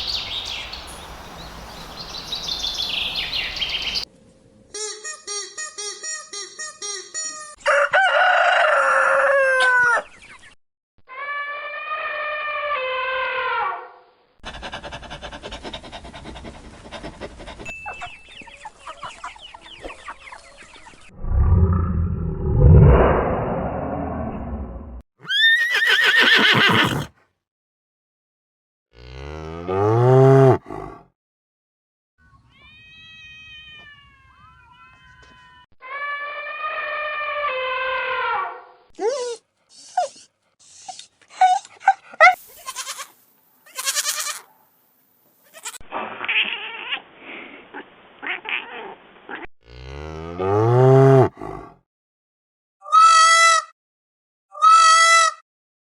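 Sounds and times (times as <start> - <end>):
rooster crowing: 7.6 - 10.0
chickens clucking: 17.9 - 21.1
drawn-out animal call: 25.2 - 27.1
horse whinny: 25.2 - 27.1, 50.4 - 51.7
faint high animal call: 32.2 - 39.4.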